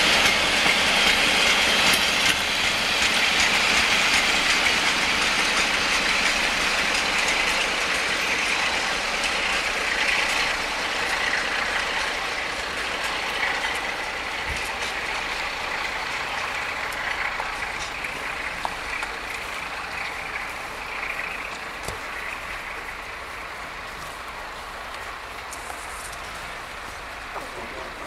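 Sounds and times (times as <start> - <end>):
diesel train pulling away: 0.0 - 28.0.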